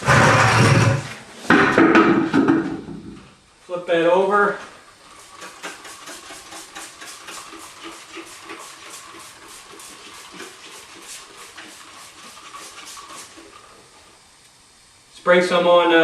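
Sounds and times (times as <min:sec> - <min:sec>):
spray bottle short hissing sprays: 0:05.2 - 0:13.7.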